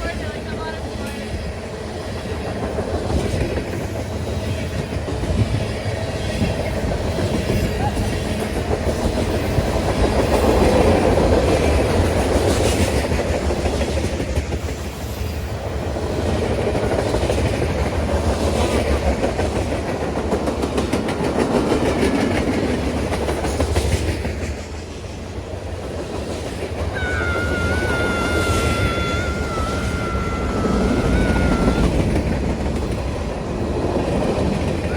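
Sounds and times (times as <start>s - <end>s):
train wheels clattering on rails: 0.1s - 34.9s
high-pitched wheel squeal: 26.9s - 32.0s.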